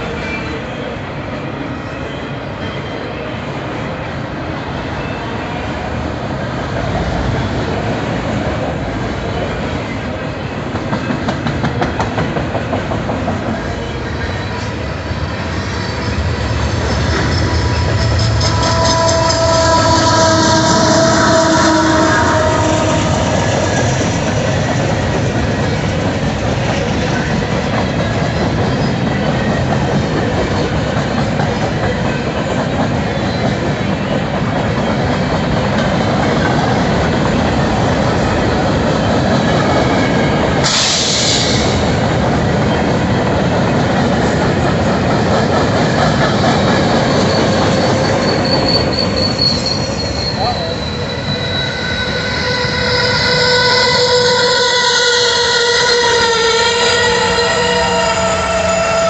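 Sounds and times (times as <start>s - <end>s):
freight train wheel clatter: 6.7s - 51.6s
high brake squeal: 15.6s - 24.0s, 39.8s - 41.9s, 47.1s - 59.0s
air brake hiss: 40.6s - 41.8s.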